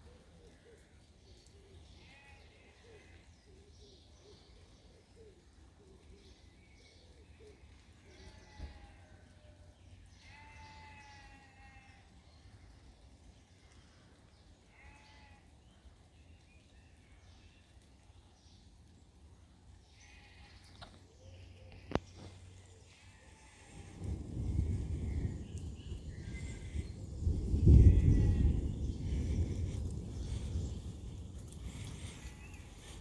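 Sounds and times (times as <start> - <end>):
rain hiss: 0.0 - 33.0.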